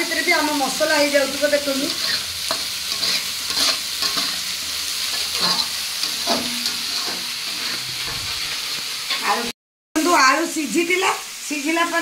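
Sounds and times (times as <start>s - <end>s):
paste sizzling in a pan: 0.0s - 12.0s
utensil scraping a pan: 1.9s - 9.3s.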